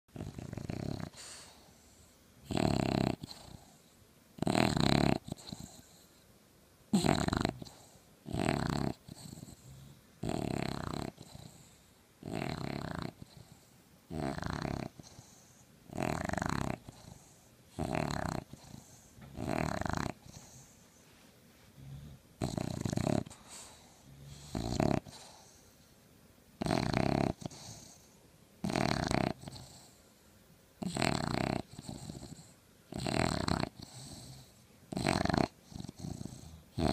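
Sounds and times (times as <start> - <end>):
puppy snoring: 0.1 - 6.2, 6.9 - 20.9, 21.7 - 25.8, 26.6 - 30.0, 30.8 - 36.9
soft breathing: 1.0 - 2.4, 14.9 - 15.8, 18.4 - 19.4, 20.1 - 26.1.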